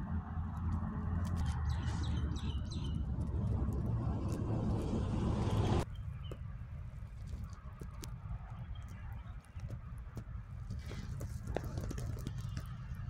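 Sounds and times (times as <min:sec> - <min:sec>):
low outdoor rumble: 0:00.0 - 0:13.0
bird chirps: 0:01.4 - 0:03.1.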